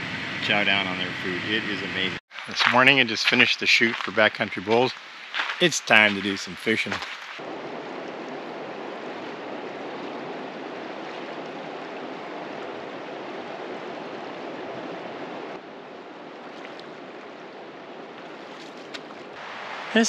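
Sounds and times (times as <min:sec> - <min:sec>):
river flowing over stones: 0:19.2 - 0:20.0.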